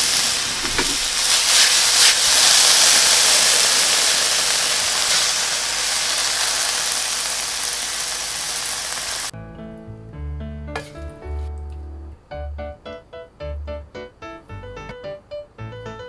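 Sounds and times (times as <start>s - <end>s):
food sizzling in a frying pan: 0.0s - 9.3s
music: 9.3s - 16.0s.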